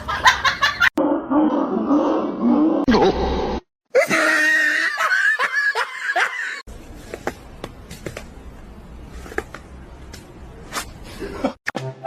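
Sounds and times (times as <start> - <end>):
person laughing: 4.0 - 6.6.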